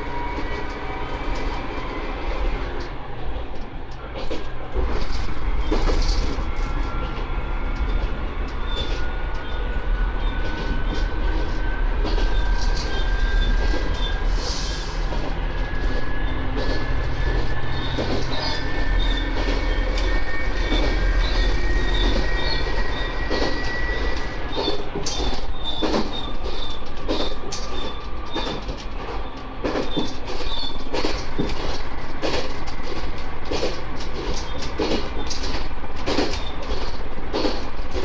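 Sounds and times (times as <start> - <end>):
railcar rumble: 0.0 - 38.0
wheel clicks over rail joints: 10.4 - 38.0.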